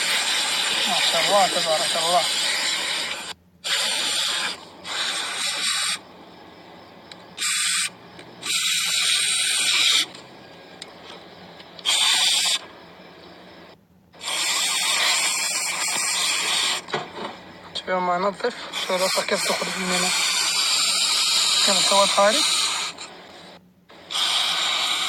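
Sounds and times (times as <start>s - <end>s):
aerosol spray hissing: 0.0s - 6.1s, 6.8s - 10.2s, 11.8s - 12.7s, 14.2s - 17.0s, 18.6s - 25.0s.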